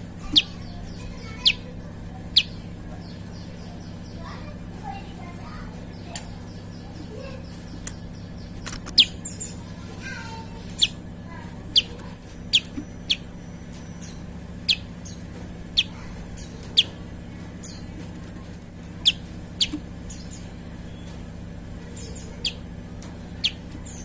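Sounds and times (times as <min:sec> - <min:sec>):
steady low hum: 0:00.0 - 0:24.0
bird chip notes: 0:00.1 - 0:04.5, 0:05.8 - 0:24.0.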